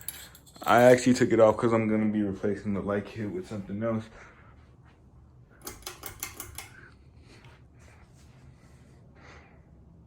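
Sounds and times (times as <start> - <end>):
rattling light clicks: 5.6 - 6.9.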